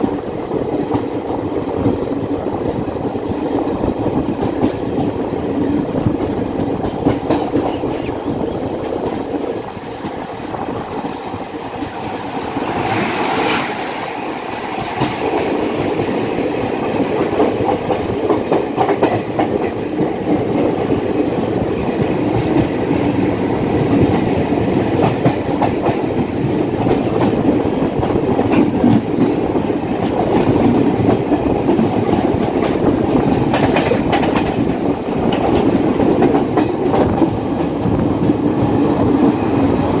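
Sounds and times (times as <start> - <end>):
train wheels clattering on rails: 0.0 - 40.0.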